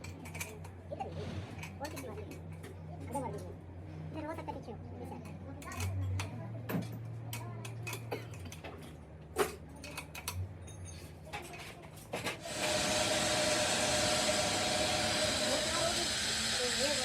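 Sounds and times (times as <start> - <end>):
steady hiss: 12.4 - 17.0.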